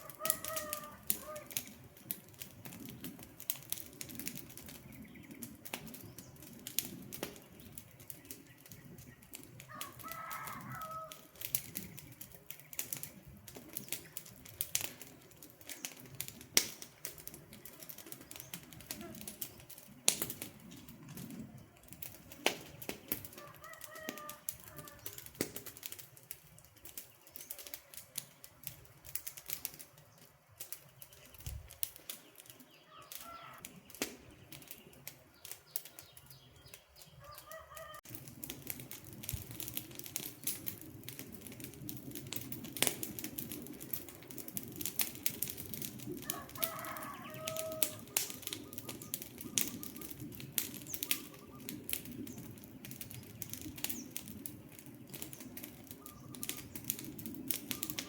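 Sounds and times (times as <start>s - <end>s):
bird calls: 0.0s - 1.8s, 4.6s - 6.5s, 30.9s - 38.0s, 46.3s - 54.2s, 55.0s - 56.9s, 57.6s - 58.0s
campfire crackling and popping: 0.0s - 58.0s.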